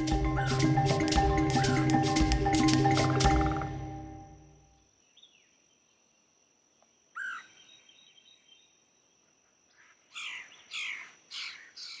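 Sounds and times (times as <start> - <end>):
bird calling: 0.0 - 4.4, 9.8 - 12.0.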